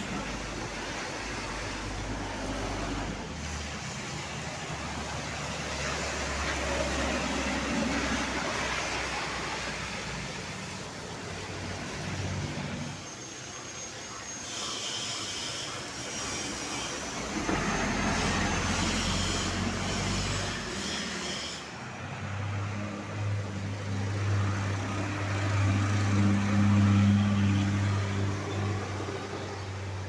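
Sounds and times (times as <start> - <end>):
vehicle passing: 21.8 - 30.0.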